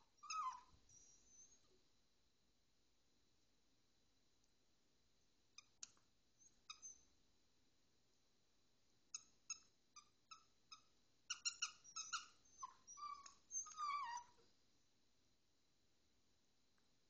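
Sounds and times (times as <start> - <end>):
puppy whining: 0.0 - 1.7, 5.6 - 7.1, 9.5 - 14.5
squeaky rubber toy: 0.2 - 0.7, 9.2 - 14.4.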